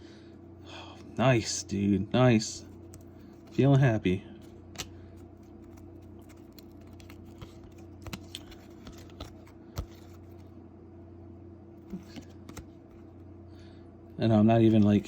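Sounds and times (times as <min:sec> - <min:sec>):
steady low hum: 0:00.0 - 0:15.0
trading cards flipped by hand: 0:04.4 - 0:10.5, 0:11.8 - 0:13.2.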